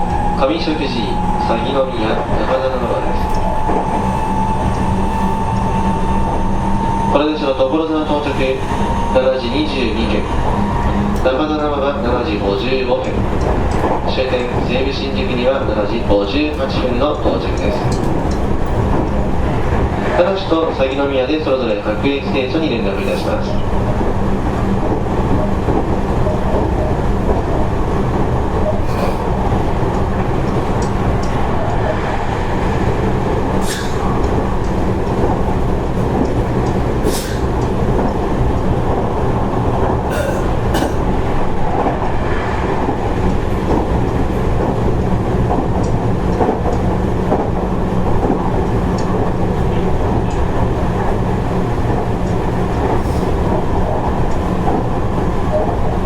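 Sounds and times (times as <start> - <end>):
track clacks: 0.0 - 56.0
train wheels rumbling: 0.0 - 56.0.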